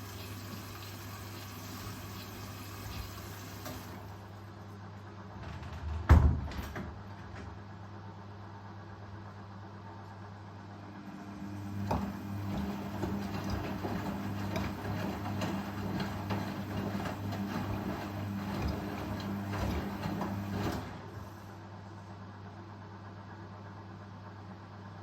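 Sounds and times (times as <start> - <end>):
washing machine motor hum: 0.0 - 25.0
washing machine drum rattling: 11.8 - 20.8.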